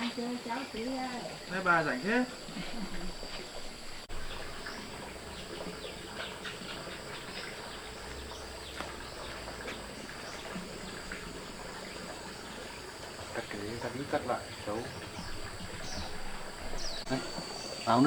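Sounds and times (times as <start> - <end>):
birds chirping: 0.0 - 18.0
high insect drone: 0.0 - 18.0.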